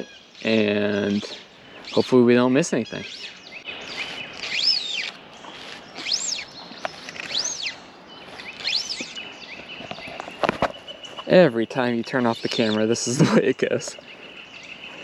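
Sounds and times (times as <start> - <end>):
songbird whistling: 2.8 - 11.3.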